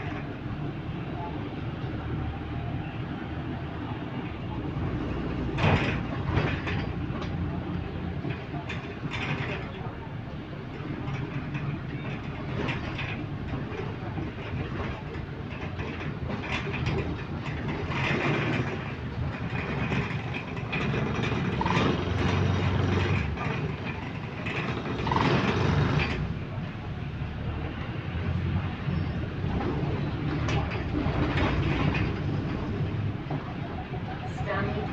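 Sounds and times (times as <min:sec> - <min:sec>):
bus body rattling: 0:00.0 - 0:34.9
bus engine drone: 0:00.0 - 0:34.9
road noise: 0:00.0 - 0:34.9.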